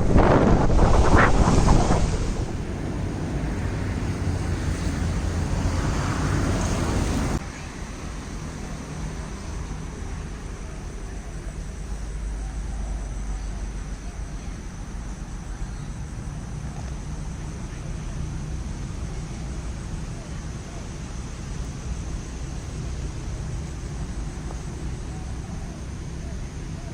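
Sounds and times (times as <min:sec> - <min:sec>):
wind buffeting microphone: 0:00.0 - 0:07.4
distant traffic rumble: 0:00.0 - 0:26.9.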